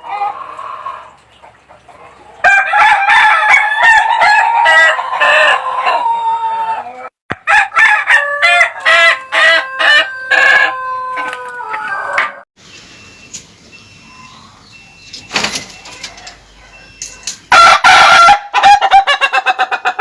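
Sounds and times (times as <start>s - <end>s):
rooster crowing: 2.4s - 12.4s, 17.5s - 19.1s.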